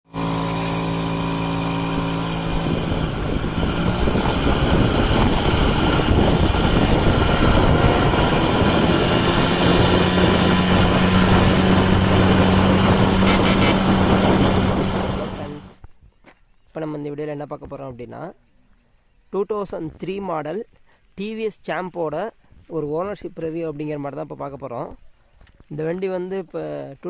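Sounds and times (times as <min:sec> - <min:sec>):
two-stroke moped engine running: 0:00.0 - 0:15.7.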